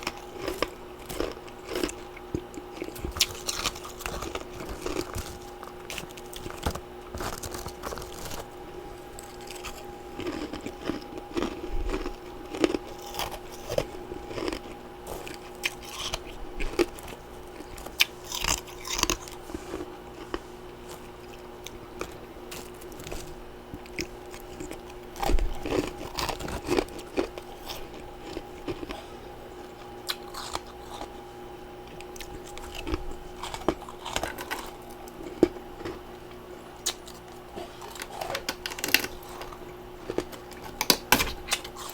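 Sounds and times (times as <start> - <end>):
person crunching ice: 2.8 - 20.3.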